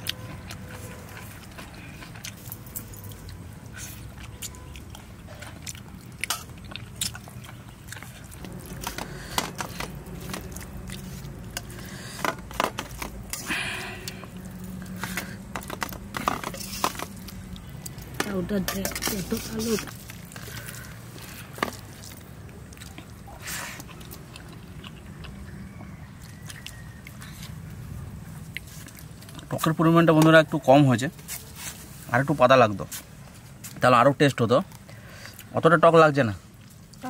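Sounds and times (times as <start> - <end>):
person chewing food: 0.0 - 18.2, 19.8 - 29.6.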